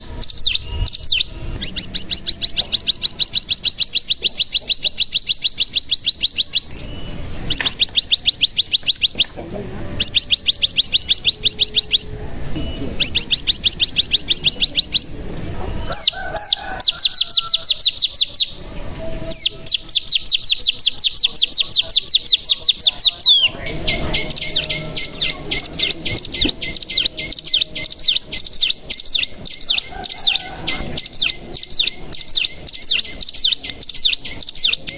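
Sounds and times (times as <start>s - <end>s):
bird chirps: 0.0s - 34.9s
bird singing high-pitched trills: 0.0s - 34.9s
choppy run of bird notes: 0.0s - 34.9s.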